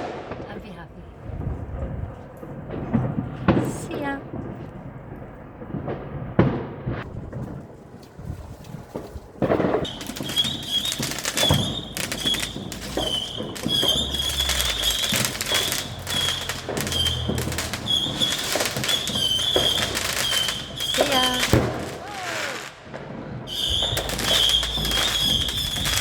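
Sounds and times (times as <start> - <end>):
fireworks cracks and bangs: 0.0 - 26.0
high wavering whistle: 9.9 - 21.6, 23.5 - 26.0.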